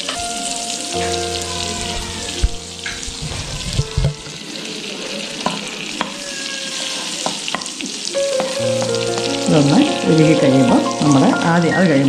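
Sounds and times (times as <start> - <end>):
butter sizzling in a pan: 0.0 - 12.0.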